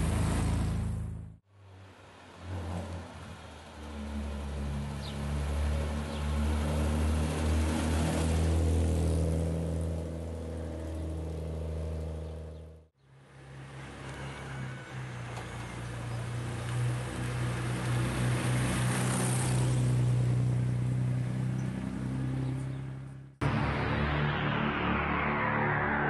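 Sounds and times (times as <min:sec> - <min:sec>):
another car engine: 0:00.0 - 0:26.0
car engine driving past: 0:21.8 - 0:26.0.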